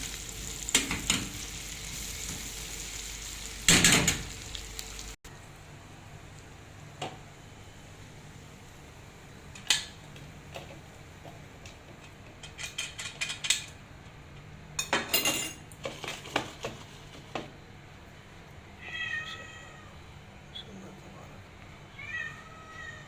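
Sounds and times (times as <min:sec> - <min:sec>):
dishes and cutlery clinking: 0:14.8 - 0:16.5
cat meowing: 0:18.8 - 0:20.0, 0:21.9 - 0:23.0.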